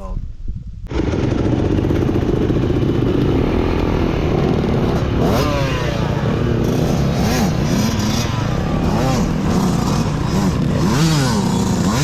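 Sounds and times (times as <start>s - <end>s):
loud rough rattle: 0.9s - 5.4s
dirt bike engine revving: 0.9s - 12.0s.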